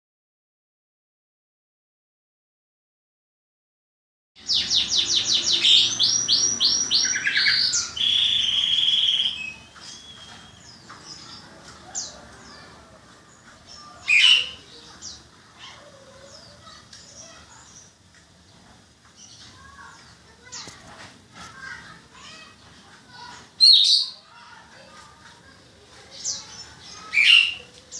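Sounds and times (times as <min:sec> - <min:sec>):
bird chirps: 0:04.4 - 0:18.0
songbirds singing: 0:04.4 - 0:27.9.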